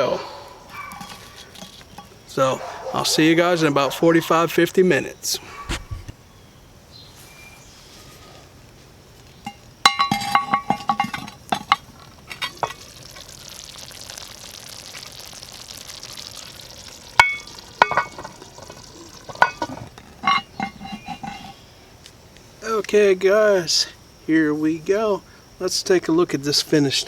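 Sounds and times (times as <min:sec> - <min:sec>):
metal clinks and scrapes: 0:00.7 - 0:02.2, 0:09.4 - 0:12.8, 0:17.2 - 0:21.6
food sizzling in pot: 0:09.4 - 0:21.6.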